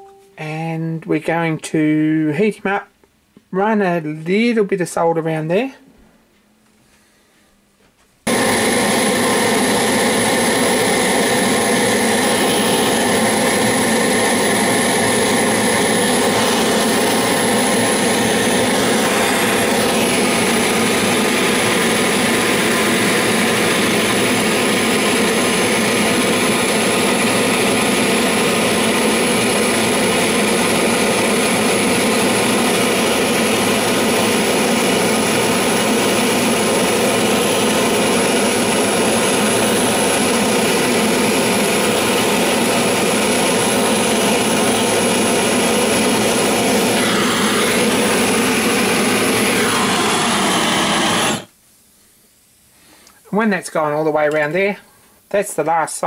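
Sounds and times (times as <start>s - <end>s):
gas torch roaring: 8.2s - 51.6s.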